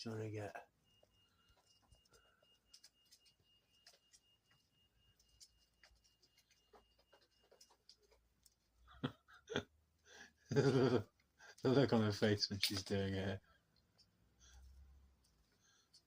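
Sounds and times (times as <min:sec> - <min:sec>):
faint high whine: 0:00.0 - 0:08.6.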